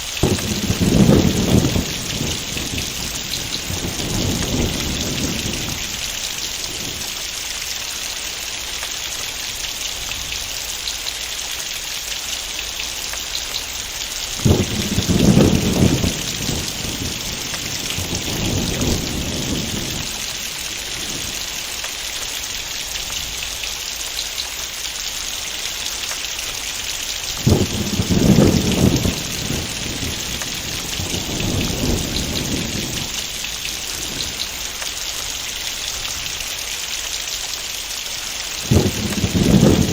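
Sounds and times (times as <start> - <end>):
thunder rumbling: 0.0 - 7.3, 14.4 - 21.9, 27.2 - 36.5, 38.3 - 39.9
heavy rain falling: 0.0 - 39.9.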